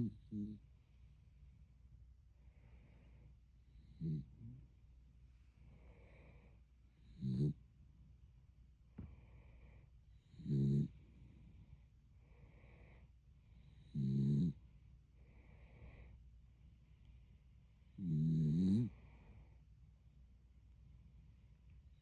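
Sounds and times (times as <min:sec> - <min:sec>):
dog snoring: 0:00.0 - 0:00.6, 0:03.8 - 0:04.6, 0:07.0 - 0:07.6, 0:10.2 - 0:11.2, 0:13.6 - 0:14.6, 0:18.0 - 0:19.4.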